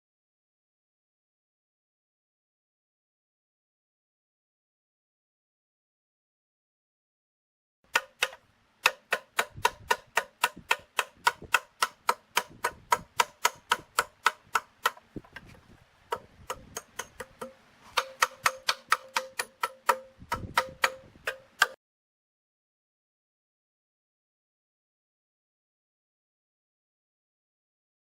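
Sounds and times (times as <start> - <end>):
metal tool tapping on metal: 7.9 - 15.4, 16.1 - 21.8.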